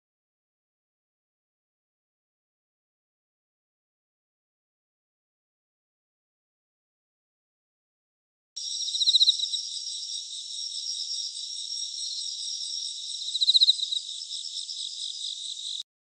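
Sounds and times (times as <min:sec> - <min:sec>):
high-pitched insect chirping: 0:08.6 - 0:15.8.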